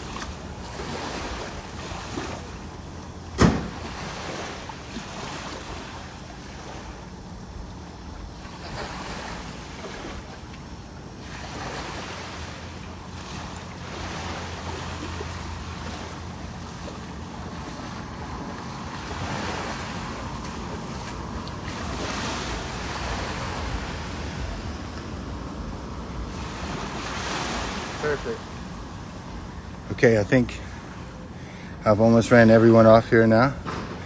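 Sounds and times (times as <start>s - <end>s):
ocean surf washing: 0.0s - 34.0s
wind on microphone: 13.7s - 28.0s.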